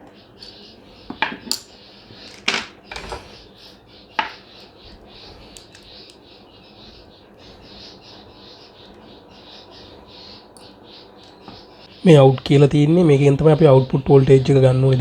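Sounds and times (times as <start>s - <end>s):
tools clicking and tapping: 0.0s - 3.2s.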